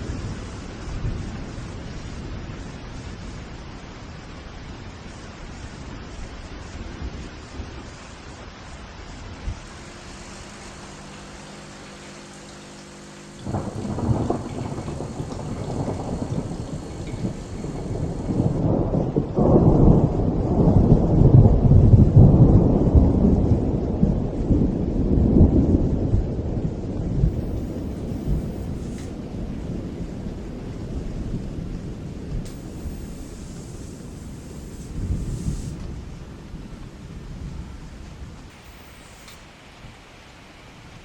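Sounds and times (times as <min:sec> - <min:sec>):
steady rain hiss: 0:00.0 - 0:41.0
thunder rumbling: 0:09.5 - 0:40.0.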